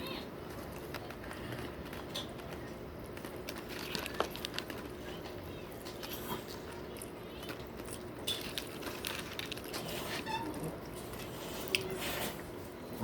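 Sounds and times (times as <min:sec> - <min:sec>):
faint room hum: 0:00.0 - 0:13.0
chewing mouth noises: 0:00.5 - 0:12.3.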